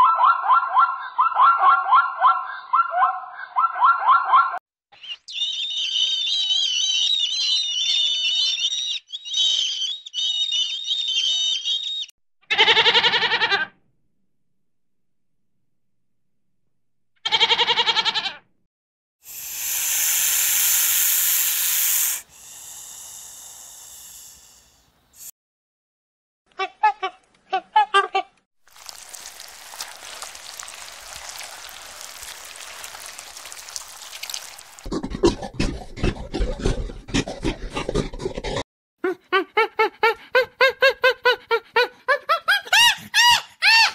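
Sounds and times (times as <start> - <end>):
young animal bleating: 12.5 - 13.7, 17.2 - 18.4.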